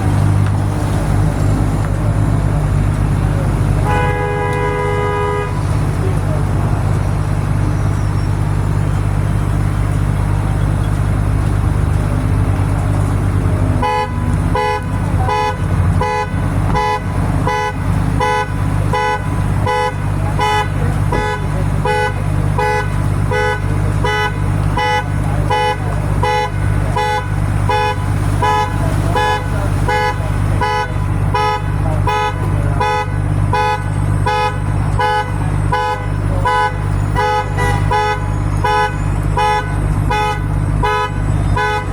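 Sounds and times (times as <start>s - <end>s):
diesel truck engine running: 0.0s - 41.9s.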